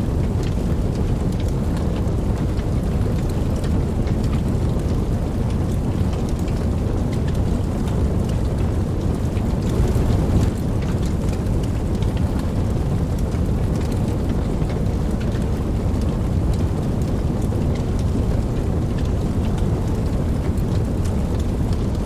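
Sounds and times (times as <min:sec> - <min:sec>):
steady rain: 0:00.0 - 0:22.0
distant thunder rumble: 0:09.1 - 0:12.1.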